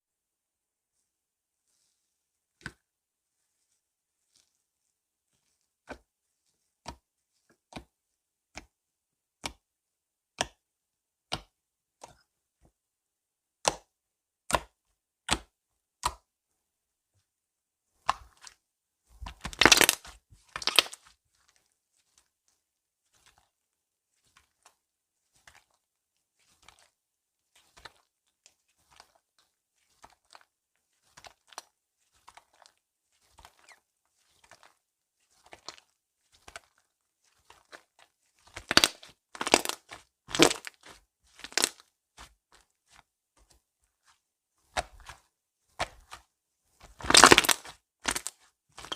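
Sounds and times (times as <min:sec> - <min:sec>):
slime popping and crackling: 0:19.4 - 0:21.0, 0:38.5 - 0:41.8, 0:47.0 - 0:48.9.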